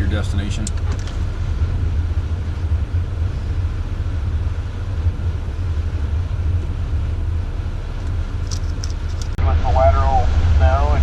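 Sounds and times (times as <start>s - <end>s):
road noise: 0.0s - 11.0s
truck engine rumble: 0.0s - 11.0s.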